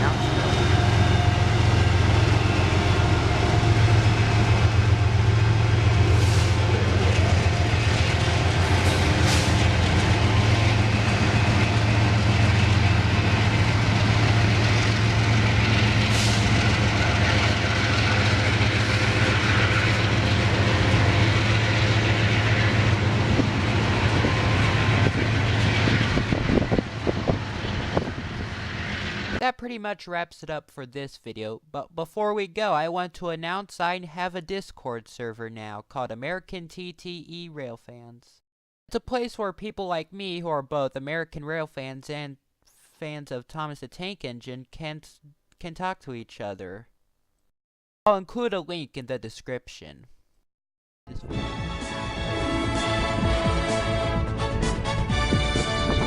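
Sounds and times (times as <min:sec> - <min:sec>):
diesel locomotive engine droning: 0:00.0 - 0:29.4, 0:51.1 - 0:56.0
rail noise: 0:00.0 - 0:29.4, 0:51.1 - 0:56.0.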